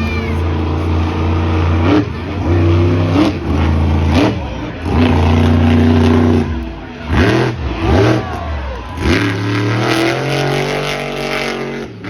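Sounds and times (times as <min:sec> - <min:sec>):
truck engine revving hard: 0:00.0 - 0:12.0.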